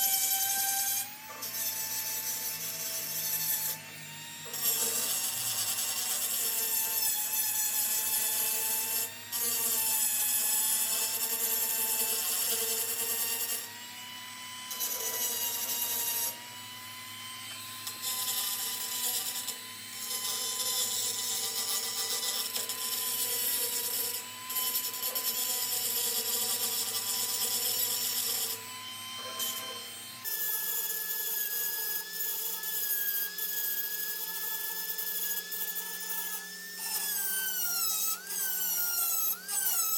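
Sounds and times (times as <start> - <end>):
grinder motor whine: 0.0 - 39.9
gritty grinding on metal: 29.1 - 29.9.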